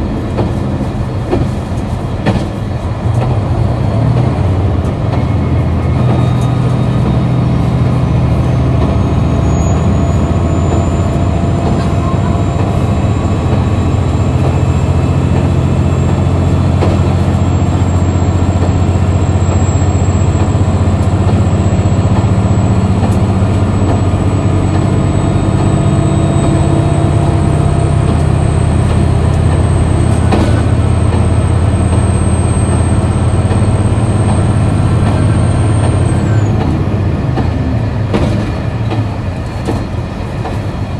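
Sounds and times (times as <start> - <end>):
high engine whine: 0.0 - 40.9
railcar diesel engine drone: 0.0 - 40.9.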